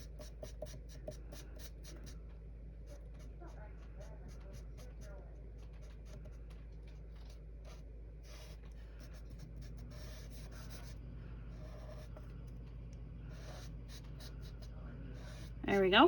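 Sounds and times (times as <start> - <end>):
steady low hum: 0.0 - 16.0
marker rubbing across paper: 2.9 - 11.0, 11.6 - 12.2, 13.3 - 15.6.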